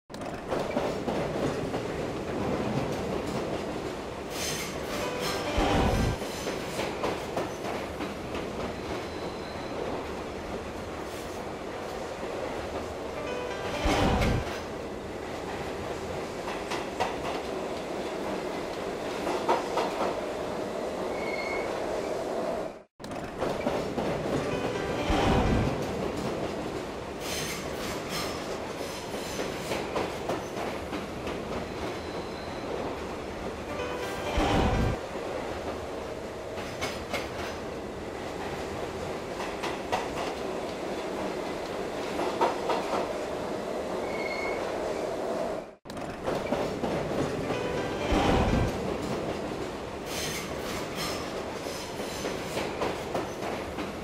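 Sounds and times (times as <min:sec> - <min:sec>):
heavy train rumble: 0:00.1 - 0:21.0, 0:23.2 - 0:43.9, 0:45.2 - 0:54.0
train rolling on track: 0:00.1 - 0:54.0
high wheel squeal: 0:21.1 - 0:21.7, 0:44.0 - 0:44.7.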